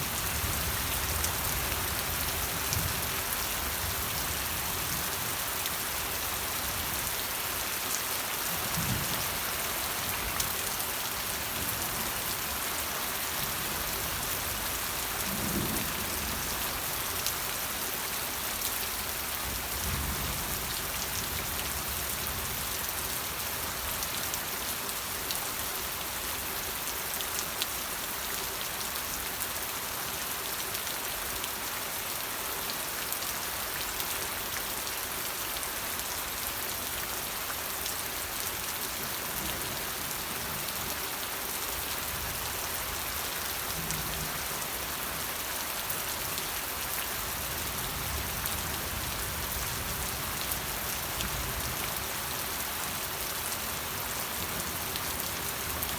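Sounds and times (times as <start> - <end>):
rain pattering on a surface: 0.0 - 55.9.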